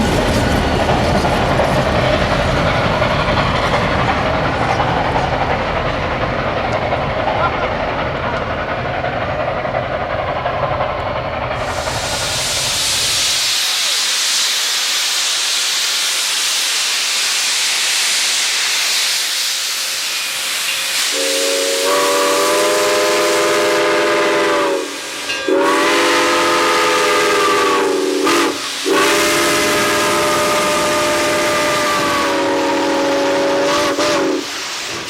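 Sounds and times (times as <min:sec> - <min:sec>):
steam venting hiss: 0:11.5 - 0:35.0
steam whistle blasts: 0:21.0 - 0:34.6.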